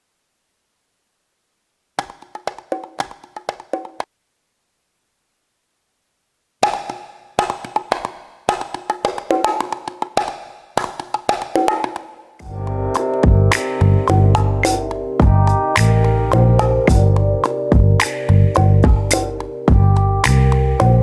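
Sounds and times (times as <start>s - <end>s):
wood-block-like percussion hits: 2.0s - 4.1s, 6.6s - 12.6s.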